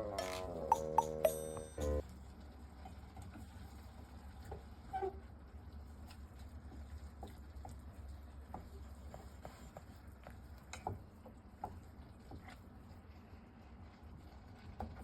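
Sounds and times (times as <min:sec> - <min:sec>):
low steady hum: 0:00.0 - 0:02.6.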